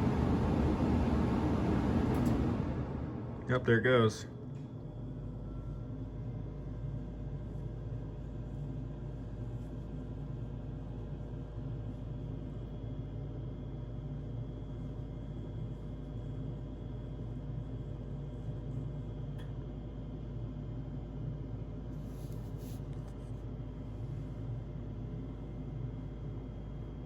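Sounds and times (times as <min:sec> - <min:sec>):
furnace fan motor humming: 0:00.0 - 0:05.6.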